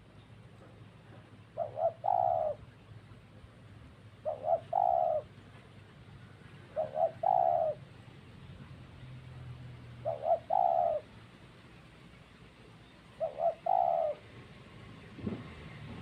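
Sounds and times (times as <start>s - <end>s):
dove cooing: 1.1s - 2.9s, 4.2s - 5.5s, 6.6s - 8.0s, 9.8s - 11.2s, 13.1s - 14.3s.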